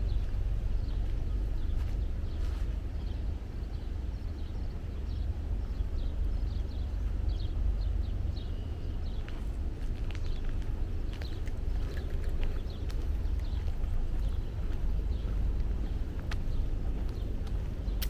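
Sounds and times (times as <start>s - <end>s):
footsteps on forest trail: 0.0s - 3.7s, 9.0s - 18.0s
small birds chirping: 0.0s - 18.0s
steady low rumble: 0.0s - 18.0s.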